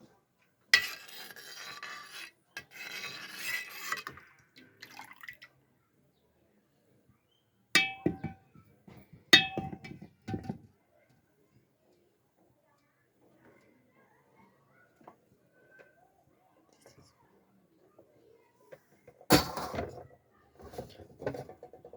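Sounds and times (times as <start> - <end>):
dishes clinking: 7.8 - 8.5, 9.4 - 10.6.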